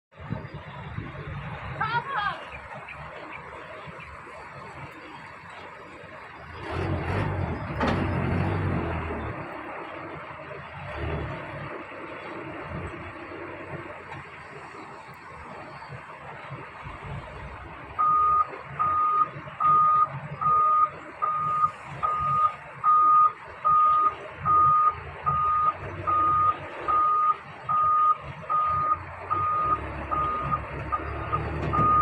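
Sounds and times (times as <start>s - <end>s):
heavy vehicle engine running: 0.1s - 32.0s
reversing alarm beeping: 17.4s - 32.0s.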